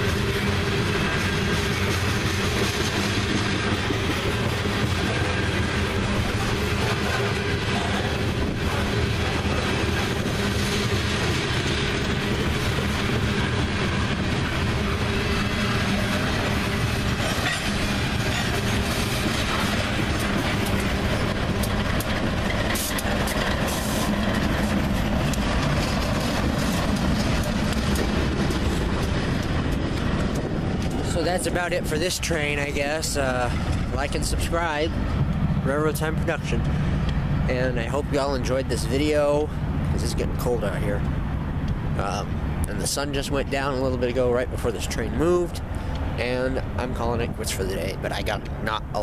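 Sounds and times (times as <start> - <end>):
diesel locomotive passing: 0.0 - 49.0
freight train wheels rumbling on rails: 0.0 - 49.0.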